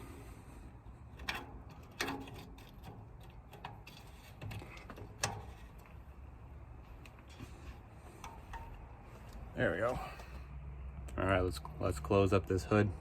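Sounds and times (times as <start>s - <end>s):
metal clicks and knocks: 1.2s - 6.0s.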